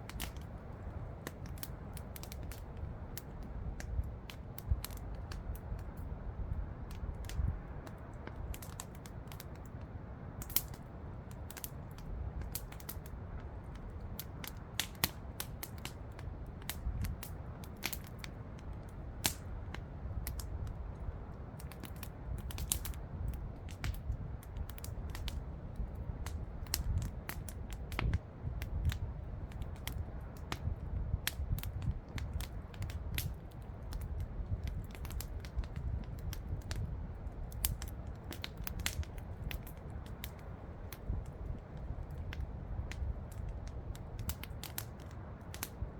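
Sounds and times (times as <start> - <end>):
low steady rumble: 0.0 - 8.6
campfire crackling and popping: 0.0 - 45.9.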